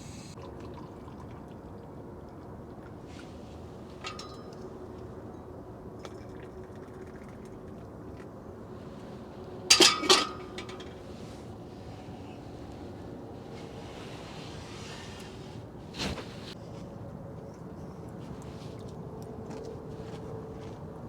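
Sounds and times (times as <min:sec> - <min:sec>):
glassware and dishes clinking: 0:09.7 - 0:11.0.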